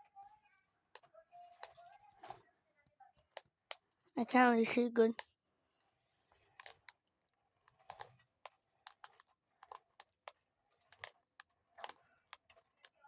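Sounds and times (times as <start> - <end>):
faint irregular clicks and taps: 0.0 - 13.0.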